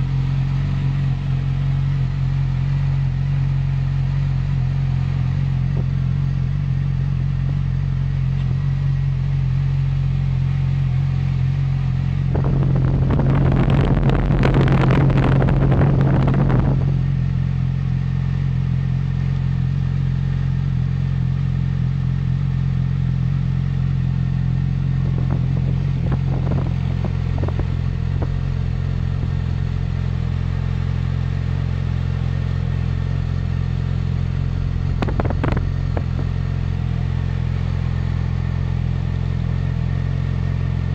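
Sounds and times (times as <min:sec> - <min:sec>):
motorcycle engine idling: 0:00.0 - 0:40.9
motorcycle engine revving: 0:00.0 - 0:40.9.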